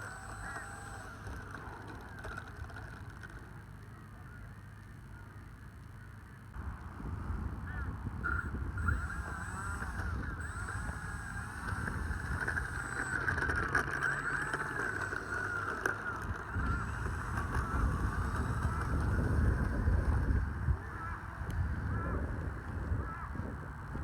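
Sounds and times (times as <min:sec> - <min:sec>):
geese honking: 0:00.0 - 0:01.6
wind rumble on microphone: 0:06.6 - 0:15.6, 0:16.2 - 0:24.0.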